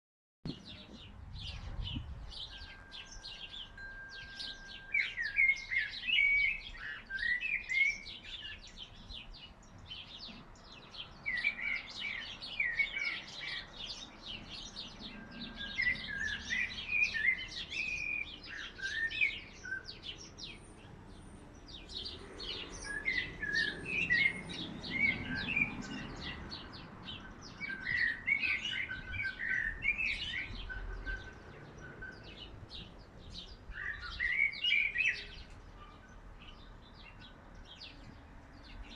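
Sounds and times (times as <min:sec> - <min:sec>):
songbird singing flute-like phrases: 0:00.5 - 0:38.0
birds chirping: 0:00.5 - 0:38.9.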